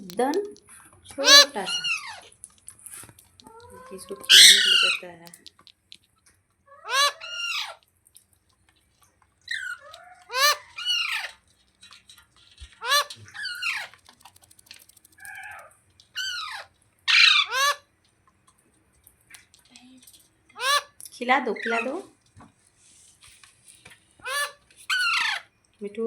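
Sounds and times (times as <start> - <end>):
parakeet squawking: 1.1 - 2.3, 3.4 - 5.2, 6.7 - 7.8, 9.4 - 11.4, 12.7 - 14.0, 15.2 - 17.9, 20.6 - 22.1, 24.2 - 25.5.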